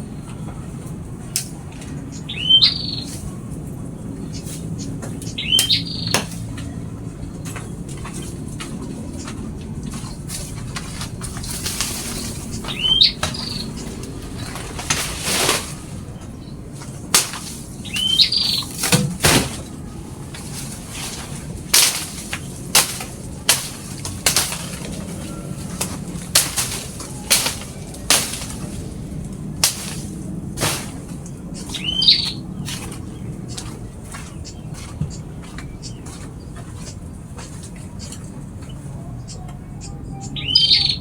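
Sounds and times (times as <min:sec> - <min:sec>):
small birds chirping: 0:00.0 - 0:41.0
wings flapping: 0:07.5 - 0:34.9.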